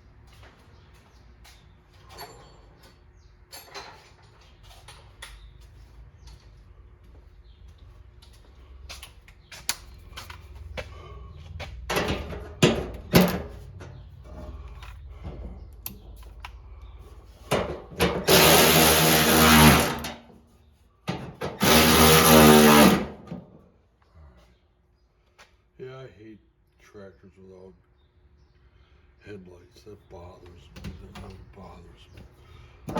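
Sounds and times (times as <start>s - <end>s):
tool handling clicks and knocks: 11.6s - 16.6s, 17.4s - 20.2s, 21.1s - 23.5s
electric drill driving a bolt: 17.6s - 20.3s, 21.4s - 23.3s.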